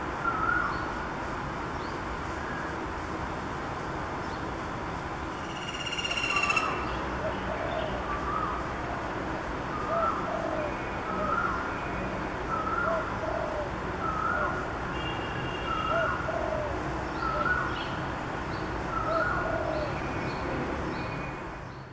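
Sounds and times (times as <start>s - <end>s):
faint high bird chirps: 5.4s - 7.0s.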